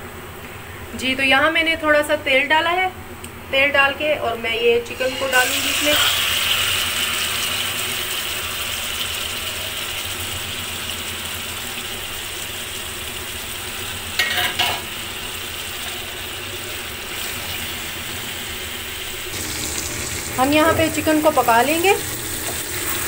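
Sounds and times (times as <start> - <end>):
chicken sizzling in oil: 4.9 - 23.0.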